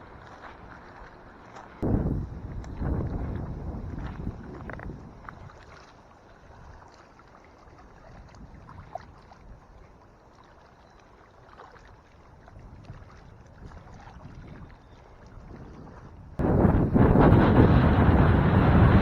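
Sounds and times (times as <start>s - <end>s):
wind buffeting microphone: 1.8s - 5.8s, 12.4s - 19.0s.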